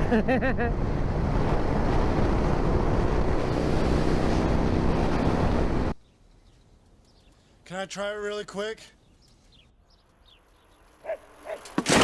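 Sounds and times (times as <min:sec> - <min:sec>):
wind roaring over microphone: 0:00.7 - 0:06.0.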